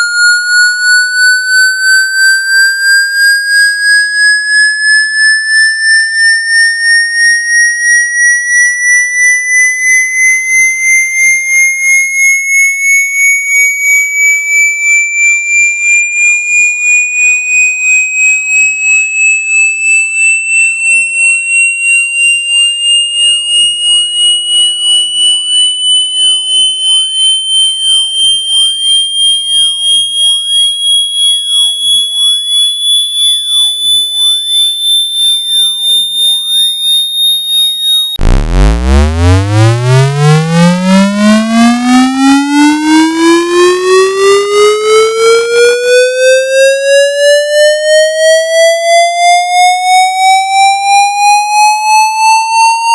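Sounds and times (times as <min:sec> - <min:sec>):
pulsing high synthetic tone: 0:00.0 - 0:19.3, 0:22.2 - 0:45.7
deep buzzy tone rising: 0:38.2 - 0:42.0.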